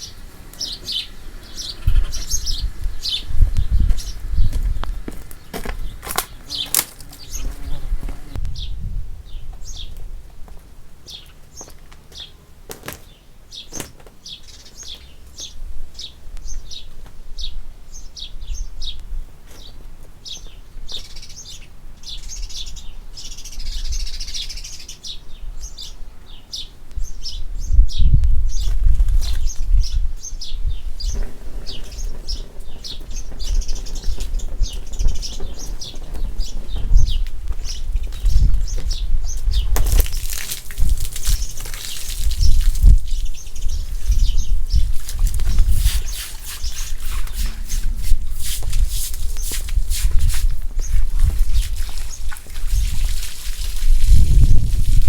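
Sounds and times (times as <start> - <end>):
small bird chirping: 0.0 - 10.0, 19.6 - 48.2.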